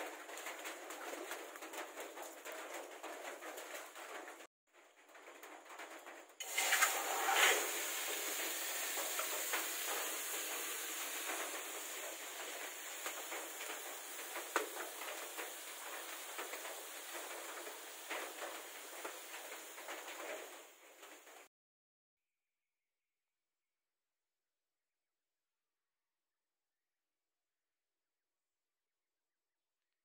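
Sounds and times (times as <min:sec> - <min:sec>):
chicken sizzling in a wok: 0:05.8 - 0:21.5
oil popping and spattering: 0:06.4 - 0:20.4.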